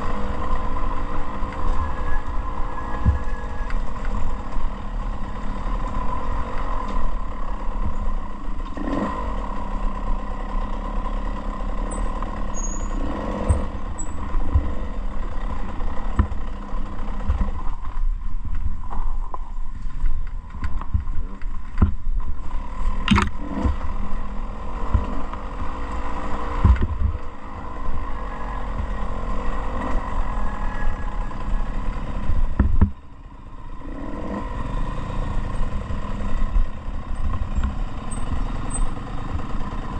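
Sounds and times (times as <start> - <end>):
dirt bike engine running: 0.0 - 39.9
wind rumble on microphone: 1.1 - 4.7.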